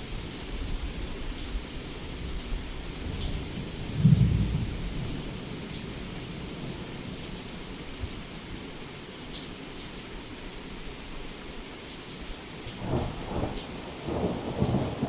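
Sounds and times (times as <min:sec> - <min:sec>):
heavy rain on a window: 0:00.0 - 0:15.0
thunder clap rumbling: 0:04.0 - 0:05.2, 0:12.8 - 0:15.0.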